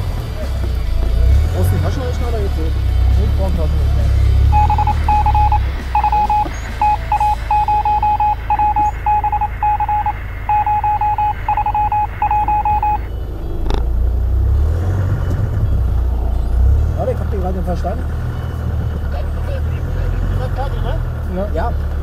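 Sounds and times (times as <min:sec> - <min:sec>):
low engine rumble: 0:00.0 - 0:22.0
electronic beeping: 0:04.5 - 0:14.0.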